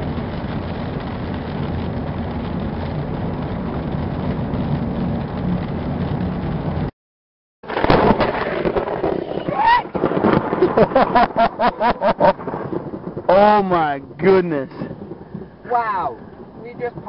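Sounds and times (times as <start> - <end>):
car engine and road noise: 0.0 - 6.9.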